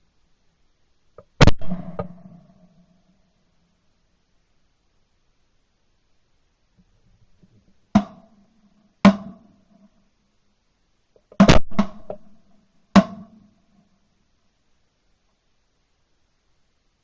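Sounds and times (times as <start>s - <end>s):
knocks on hollow object: 13.0s - 13.3s.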